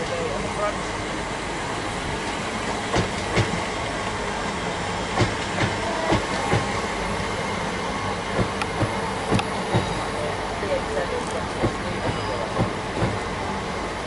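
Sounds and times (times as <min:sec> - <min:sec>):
train rumbling past: 0:00.0 - 0:14.0.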